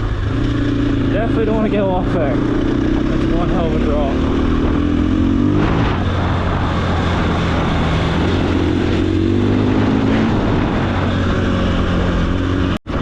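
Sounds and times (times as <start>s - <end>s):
motorcycle engine running: 0.0s - 13.0s
steady rushing noise: 0.0s - 13.0s.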